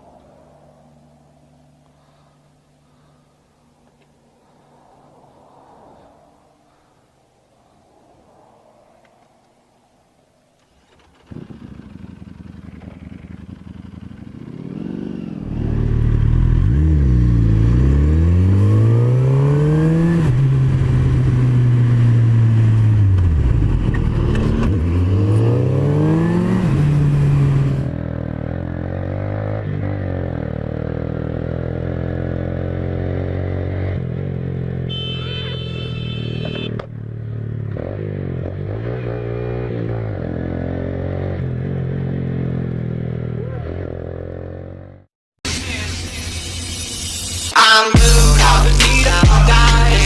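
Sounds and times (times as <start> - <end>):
road noise: 0.0 - 50.0
motorcycle engine accelerating: 10.7 - 47.1.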